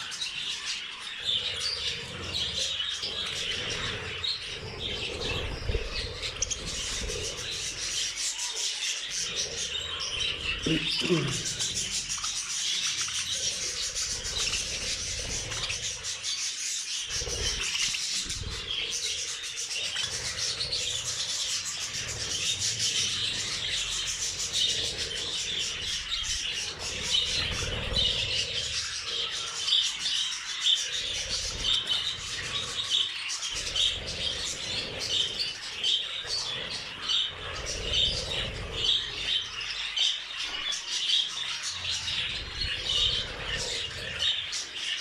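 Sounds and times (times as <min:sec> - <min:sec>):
budgerigars chattering: 0:00.0 - 0:45.0.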